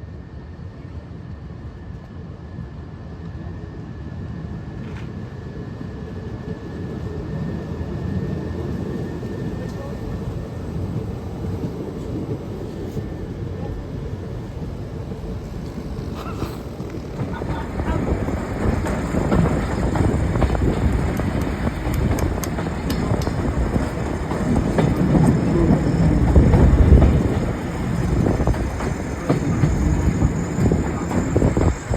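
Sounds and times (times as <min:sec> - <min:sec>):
train passing: 0:00.0 - 0:31.9
wheels clicking over rail joints: 0:14.0 - 0:31.9.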